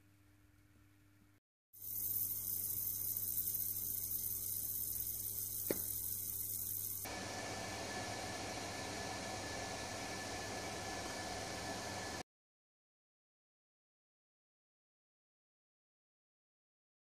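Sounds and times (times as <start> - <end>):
electrical hum: 0.0 - 12.2
compressed air hissing: 1.8 - 7.1.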